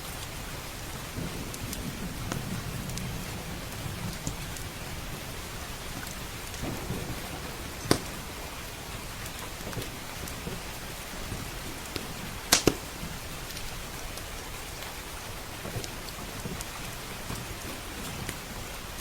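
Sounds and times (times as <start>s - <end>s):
rain hissing: 0.0s - 19.0s
wood fire crackling and popping: 0.0s - 19.0s.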